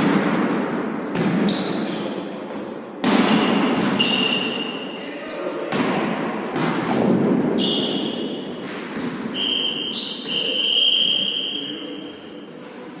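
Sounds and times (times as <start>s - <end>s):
whistle high notes: 9.4s - 11.9s.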